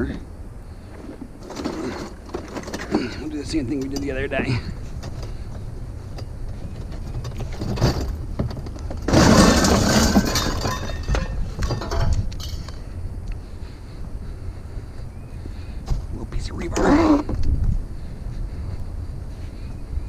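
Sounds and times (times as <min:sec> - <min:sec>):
steady low rumble: 0:00.0 - 0:20.0
knocks of scrap: 0:06.8 - 0:12.2
scrap pieces clattering and clinking: 0:07.2 - 0:12.7.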